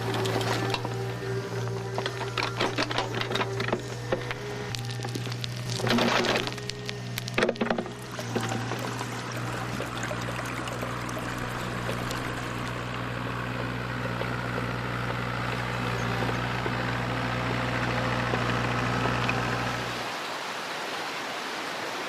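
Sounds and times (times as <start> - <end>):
rushing water: 0.0 - 14.2, 18.4 - 22.0
engine running steadily: 0.0 - 20.1.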